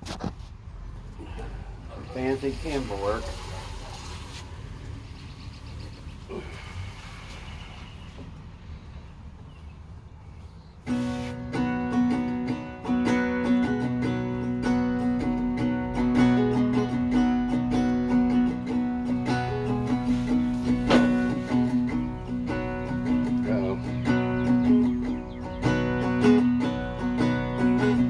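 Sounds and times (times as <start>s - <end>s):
acoustic guitar strumming: 10.8s - 28.0s.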